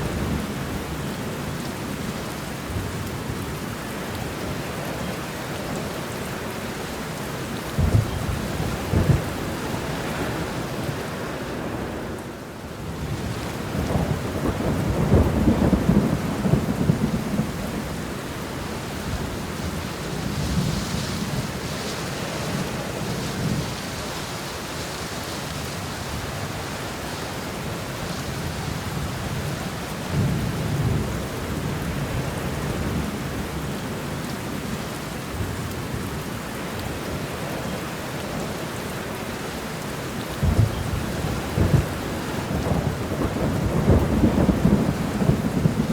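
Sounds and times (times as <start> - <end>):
steady rain falling: 0.0 - 45.9
thunder rumbling: 7.7 - 11.1, 13.0 - 24.5, 40.4 - 45.9.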